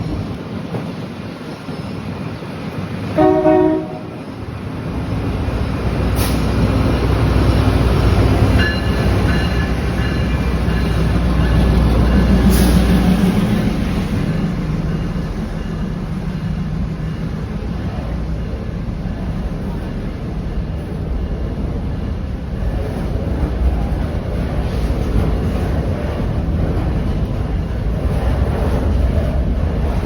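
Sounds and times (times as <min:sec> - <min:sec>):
train passing rumble: 0:00.0 - 0:30.0
train horn blast: 0:03.2 - 0:04.2.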